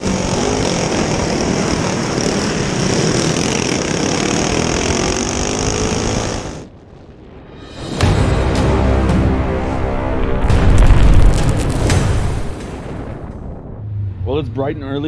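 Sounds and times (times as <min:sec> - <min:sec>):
go-kart engines droning: 0:00.0 - 0:06.7.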